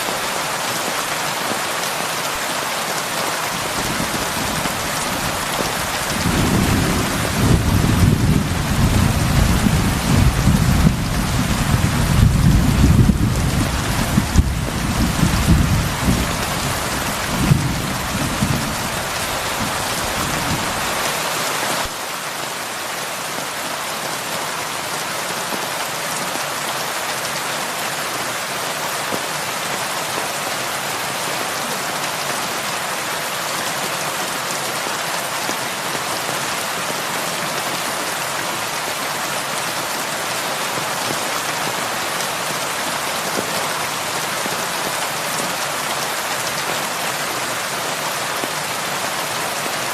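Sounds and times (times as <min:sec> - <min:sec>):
heavy rain on a roof: 0:00.0 - 0:49.9
low thunder rumble: 0:03.8 - 0:20.8.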